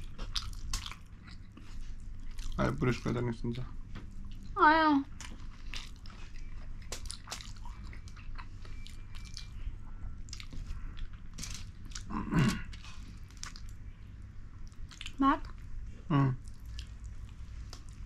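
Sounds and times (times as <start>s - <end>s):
chewing mouth clicks and smacks: 0.0s - 2.6s, 4.2s - 9.6s, 10.2s - 12.1s, 12.7s - 13.8s, 14.6s - 15.6s.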